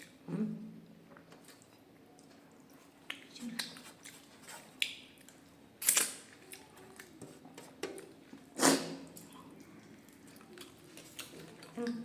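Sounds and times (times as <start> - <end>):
person chewing wetly: 1.4 - 7.2, 9.1 - 12.0
loud wet mouth sounds: 8.6 - 9.6.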